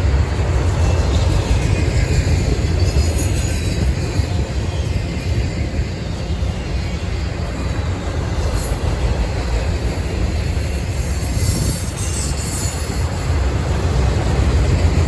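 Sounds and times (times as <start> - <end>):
train rumbling on rails: 0.0 - 15.0
high-pitched wheel squeal: 10.8 - 13.3.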